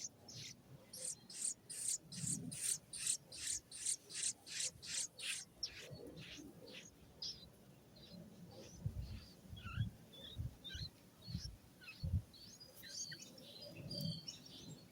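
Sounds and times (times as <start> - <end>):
baby bird raspy begging calls: 0.0 - 7.4.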